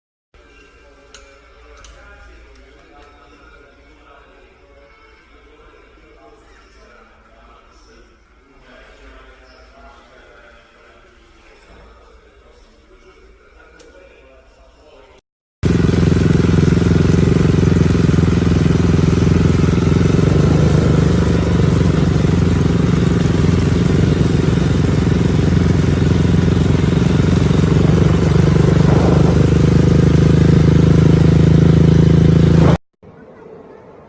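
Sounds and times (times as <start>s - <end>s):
motorcycle engine running: 15.6s - 32.8s.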